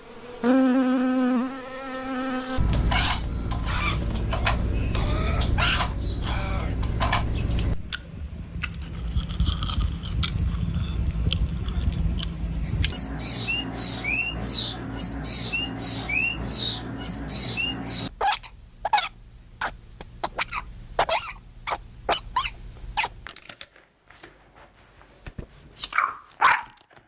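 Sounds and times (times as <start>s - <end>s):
low rumble: 2.6s - 13.5s
small animal squeaking: 2.9s - 7.4s, 13.5s - 23.1s.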